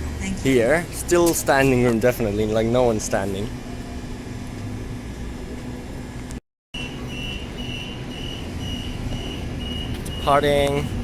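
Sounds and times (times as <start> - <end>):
electric train hum and rumble: 0.0 - 11.0
high electronic beep: 6.8 - 10.6.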